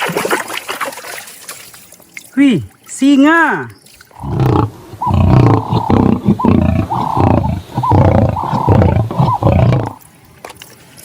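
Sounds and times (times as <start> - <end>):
lion roaring: 4.2 - 10.0.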